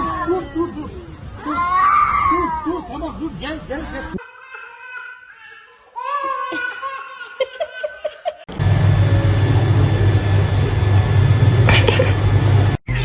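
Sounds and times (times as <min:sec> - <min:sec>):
loud steady noise: 0:08.5 - 0:13.0
low hum: 0:08.5 - 0:13.0.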